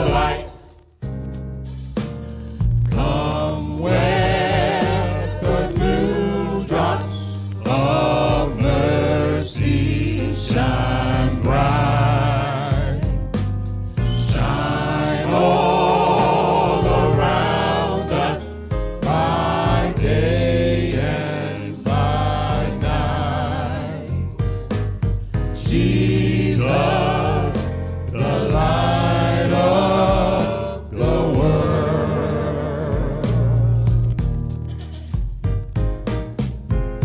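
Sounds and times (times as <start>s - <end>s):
singers with vibrato: 0.0s - 0.8s, 2.9s - 13.2s, 14.0s - 24.2s, 25.6s - 33.8s
band with sustained bass: 22.0s - 37.0s.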